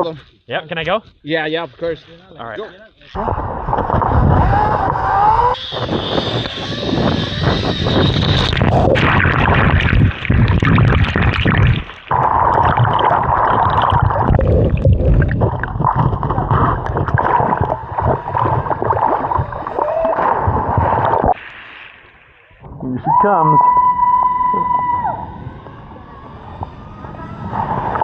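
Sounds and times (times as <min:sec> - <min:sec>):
wind rumble on microphone: 0:03.2 - 0:21.4, 0:23.7 - 0:28.0
zip-line trolley whining on cable: 0:04.3 - 0:08.9, 0:23.6 - 0:28.0.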